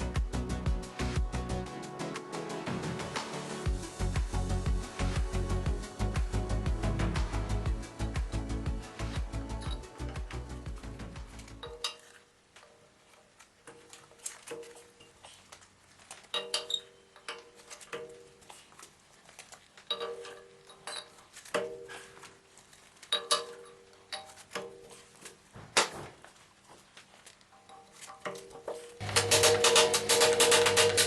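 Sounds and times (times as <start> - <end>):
metal parts and tools clinking: 9.1 - 10.4, 11.3 - 15.5, 16.1 - 18.8, 19.6 - 25.3, 27.3 - 31.0.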